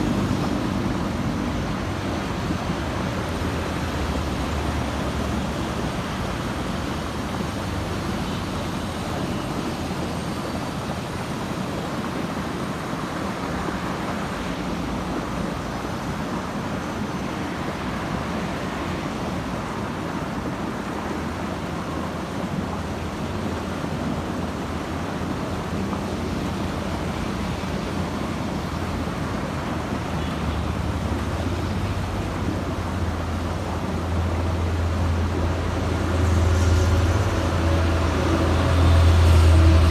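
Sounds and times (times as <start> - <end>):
road traffic rumble: 0.0 - 16.8, 17.4 - 39.9
heavy vehicle engine drone: 25.7 - 39.9.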